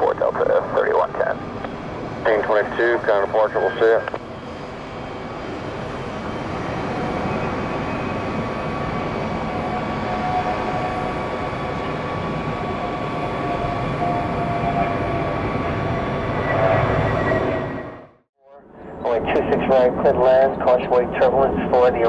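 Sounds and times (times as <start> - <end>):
jet engines rushing: 0.0 - 18.2.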